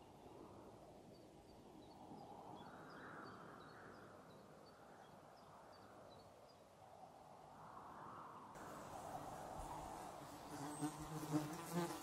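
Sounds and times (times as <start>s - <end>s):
background hiss: 8.6s - 12.0s.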